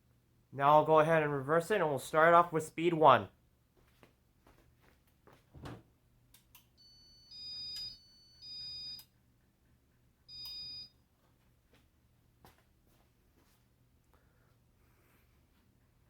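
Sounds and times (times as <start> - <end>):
short electronic beeps: 6.8 - 9.0.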